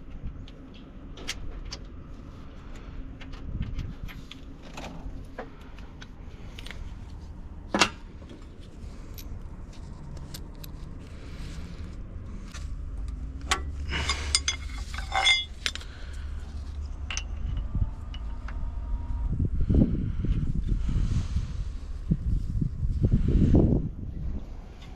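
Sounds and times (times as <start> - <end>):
steady low hum: 0.0 - 24.9
metallic clicks and clinks: 13.0 - 18.6.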